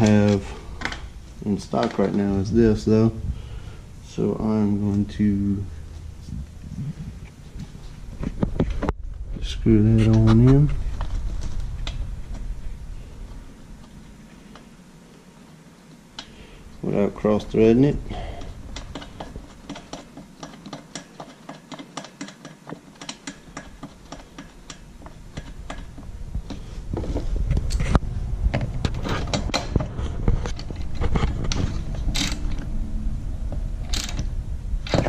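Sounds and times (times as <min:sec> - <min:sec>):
knocks of tools handled: 0:18.7 - 0:32.6.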